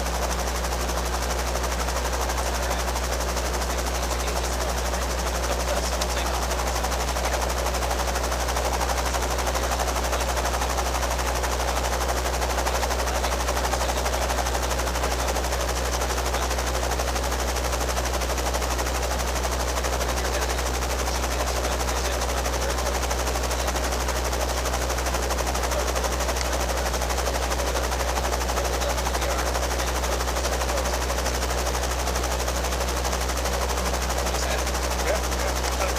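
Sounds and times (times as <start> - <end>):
helicopter rotor chopping: 0.0 - 35.9
piston engine hum: 0.0 - 35.9.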